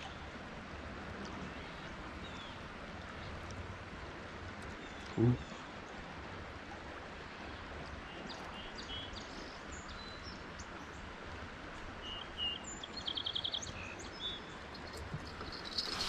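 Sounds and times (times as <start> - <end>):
wild birds chirping: 12.0 - 16.0.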